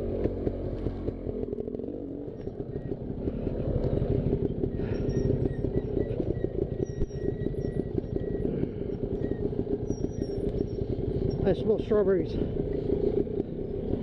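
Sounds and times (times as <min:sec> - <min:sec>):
two-stroke dirt bike engine: 0:00.0 - 0:14.0.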